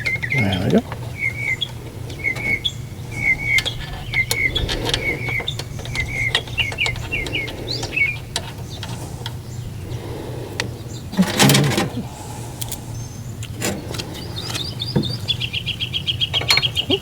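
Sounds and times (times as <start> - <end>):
hand tools clicking and knocking: 0.0 - 9.4, 10.6 - 12.0, 16.3 - 17.0
small bird chirping: 0.0 - 17.0
steady low hum: 0.0 - 17.0.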